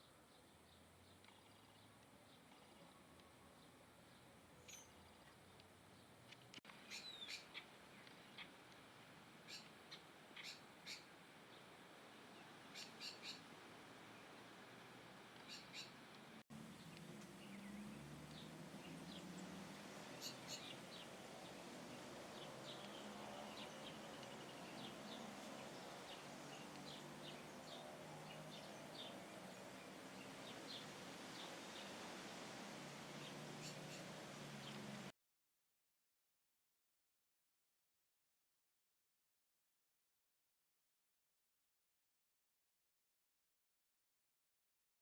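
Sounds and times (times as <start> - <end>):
small birds chirping: 0.0 - 8.6, 9.4 - 11.7, 12.4 - 13.5, 15.4 - 32.3, 33.1 - 35.1
faint steady hiss: 0.0 - 35.1.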